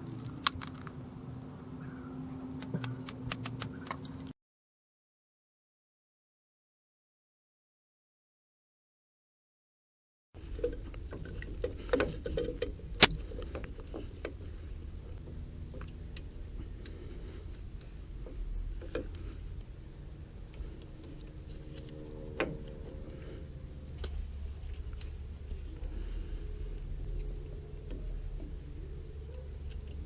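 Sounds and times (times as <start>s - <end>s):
steady low hum: 10.4s - 30.0s.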